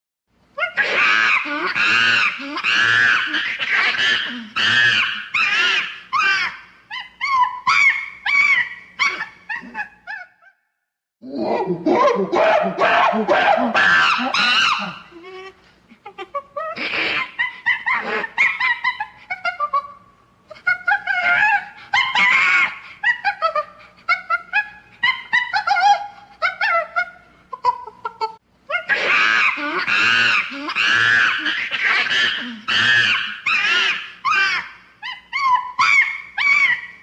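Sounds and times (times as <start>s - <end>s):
monkey squealing and chattering: 0.6s - 10.4s, 12.4s - 15.4s, 28.7s - 37.0s.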